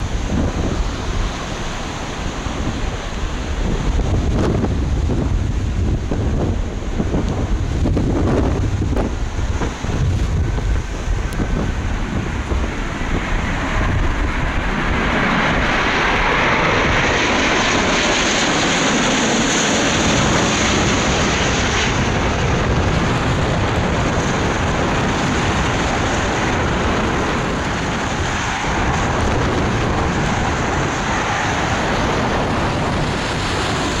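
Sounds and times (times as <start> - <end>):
jet engine noise: 0.0 - 34.0
wind buffeting microphone: 0.0 - 34.0.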